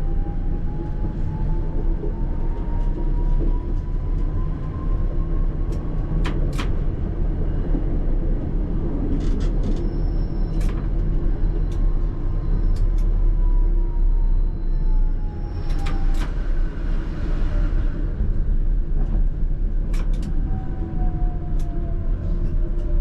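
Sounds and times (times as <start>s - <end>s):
tram rumbling on rails: 0.0s - 23.0s
high squeal: 9.8s - 10.6s.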